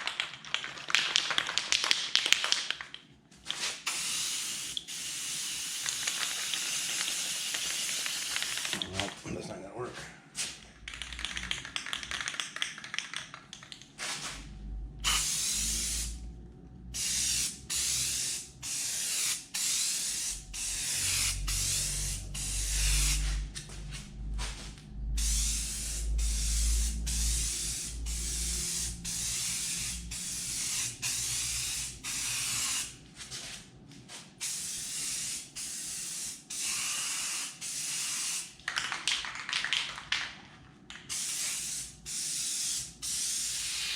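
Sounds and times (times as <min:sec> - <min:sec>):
aerosol can spraying: 0:03.6 - 0:08.9, 0:15.0 - 0:16.2, 0:17.0 - 0:23.8, 0:24.4 - 0:32.9, 0:34.4 - 0:38.5, 0:41.1 - 0:43.9
low rumble: 0:14.3 - 0:17.2, 0:20.3 - 0:31.2.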